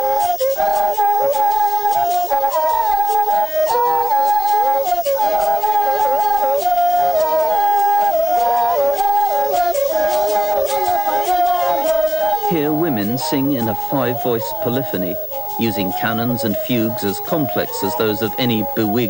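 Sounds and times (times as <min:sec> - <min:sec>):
women yodelling in polyphony: 0:08.2 - 0:19.0.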